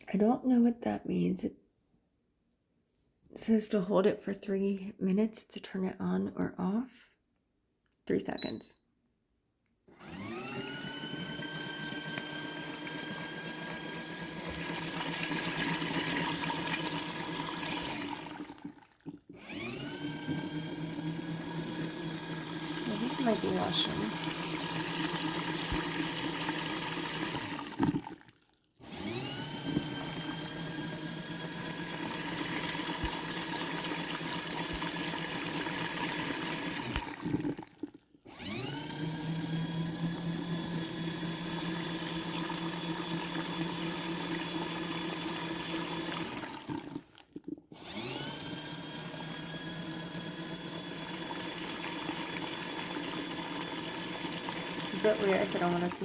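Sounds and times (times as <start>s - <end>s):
motor whine spinning up: 10.0s - 15.9s, 19.4s - 27.6s, 28.9s - 33.8s
washing machine motor humming: 10.0s - 28.2s, 28.9s - 47.1s, 47.8s - 56.0s.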